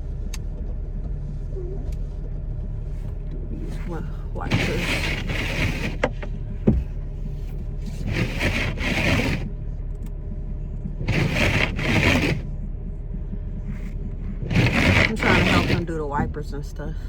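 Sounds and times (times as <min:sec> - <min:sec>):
car engine idling: 0:00.0 - 0:17.0
scraping snow off windshield: 0:02.9 - 0:09.6, 0:11.0 - 0:12.5, 0:13.7 - 0:16.6.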